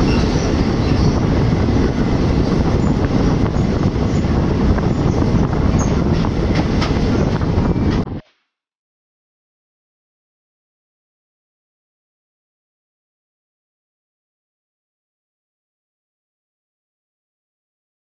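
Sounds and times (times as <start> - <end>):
train wheels rumbling on rails: 0.0 - 8.2.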